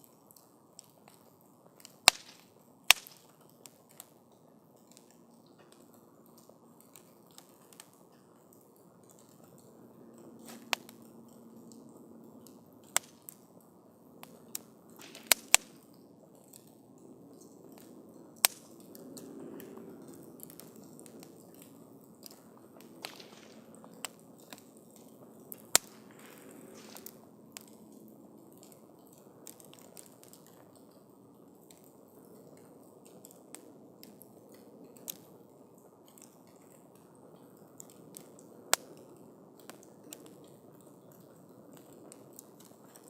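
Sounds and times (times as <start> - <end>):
rushing of flames: 0.1 - 4.1, 4.9 - 13.6, 14.2 - 30.9
campfire pops and snaps: 0.2 - 43.0.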